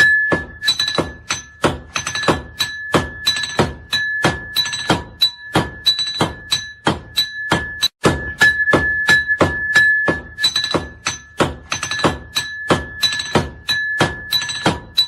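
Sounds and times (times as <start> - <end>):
anvil ringing: 0.0 - 15.0
hammer striking iron on anvil: 0.0 - 15.0.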